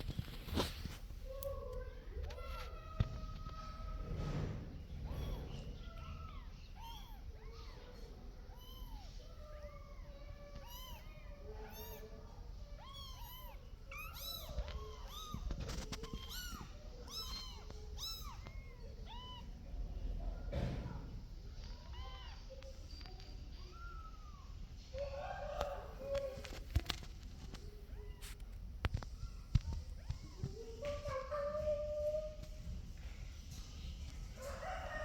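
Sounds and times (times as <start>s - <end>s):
kittens mewing: 4.8s - 19.6s.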